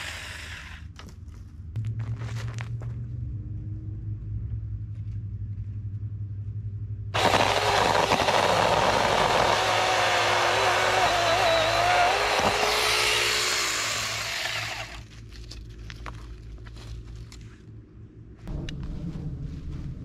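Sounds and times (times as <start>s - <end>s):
power saw running: 0.0s - 0.8s, 7.2s - 15.0s
low steady hum: 0.0s - 20.0s.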